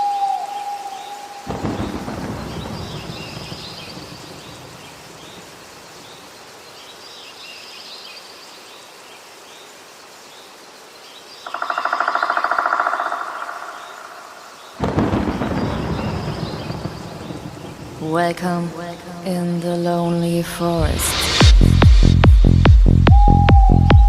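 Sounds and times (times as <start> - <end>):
low thunder rumble: 1.5 - 5.6, 14.8 - 19.2
birds chirping: 10.4 - 17.8.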